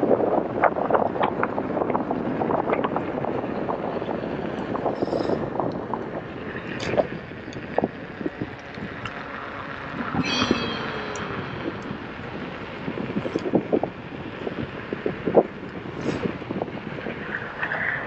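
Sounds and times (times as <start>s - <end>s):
wind roaring over helmet: 0.0s - 18.0s
brief high whine: 10.2s - 12.8s.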